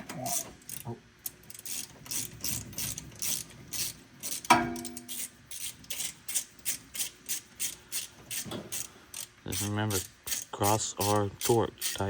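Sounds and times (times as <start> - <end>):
ratchet wrench clicking: 0.2 - 12.0
ringing metal clank: 4.5 - 5.2.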